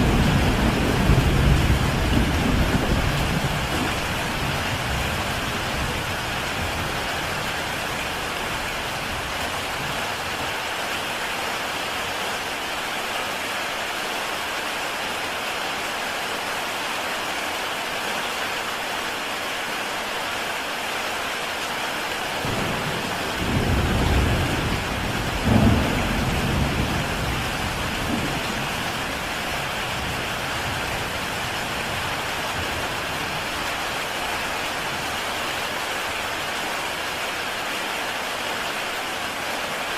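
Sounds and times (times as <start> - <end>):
thunder rumbling: 0.0 - 7.5, 22.4 - 33.5
heavy rain on a tile roof: 0.0 - 39.9.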